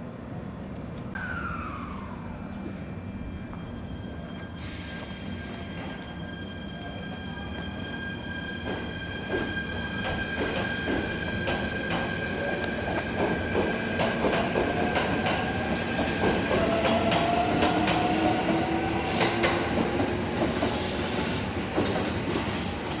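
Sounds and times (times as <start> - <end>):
train wheels clicking on rails: 8.6 - 23.0.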